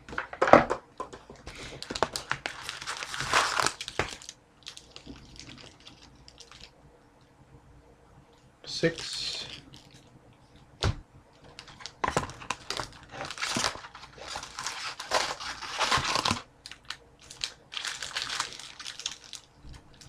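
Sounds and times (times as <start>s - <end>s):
foil packs crinkling: 1.5s - 6.7s, 11.4s - 20.0s.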